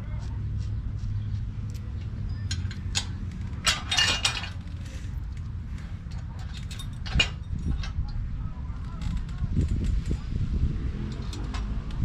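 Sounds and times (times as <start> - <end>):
steel hardware clinking: 1.7 - 8.2.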